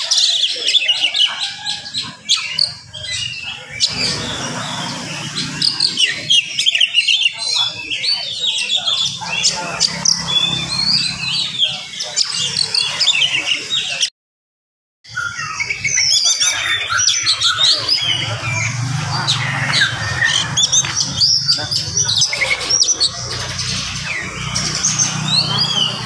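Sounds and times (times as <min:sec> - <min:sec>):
songbird whistling and chirping: 0:15.1 - 0:23.2.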